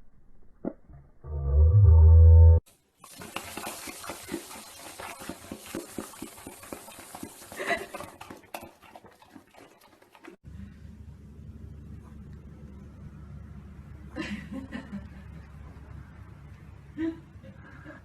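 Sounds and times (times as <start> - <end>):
low steady hum: 10.4 - 18.0.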